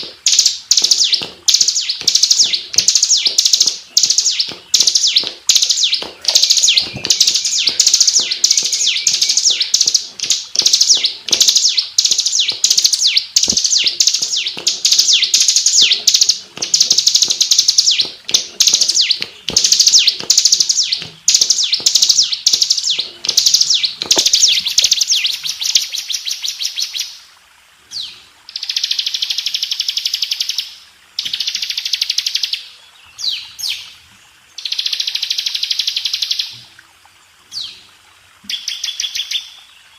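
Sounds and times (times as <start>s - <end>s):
bird buzzing trills: 0.0s - 26.0s
bird high chattering song: 0.0s - 27.2s.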